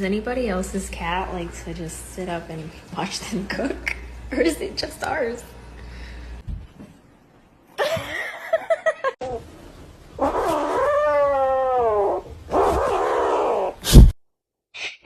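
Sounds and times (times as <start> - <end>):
cat yowling: 10.2 - 13.8.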